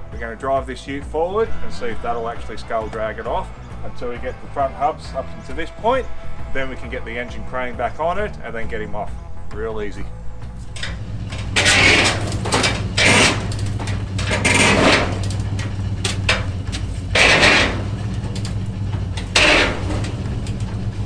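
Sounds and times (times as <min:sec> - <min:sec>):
engine running with low hum: 0:00.0 - 0:21.0
harsh noise bursts: 0:10.7 - 0:21.0.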